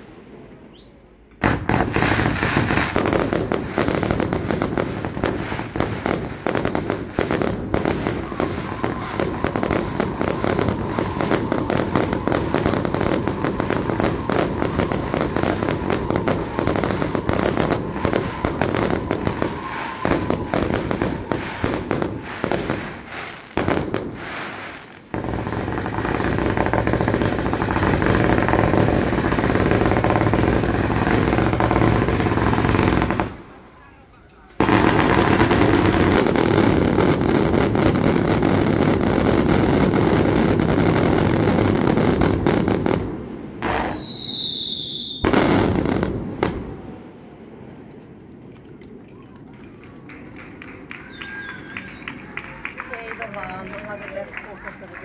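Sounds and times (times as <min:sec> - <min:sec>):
fireworks crackling: 0:00.0 - 0:55.0
rapid-fire firework launches: 0:01.4 - 0:33.4.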